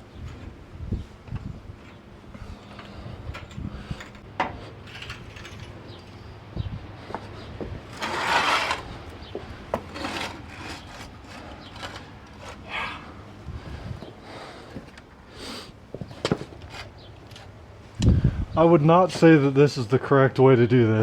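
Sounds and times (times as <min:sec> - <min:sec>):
knocks and scrapes of work: 0:02.4 - 0:06.2, 0:07.0 - 0:13.2.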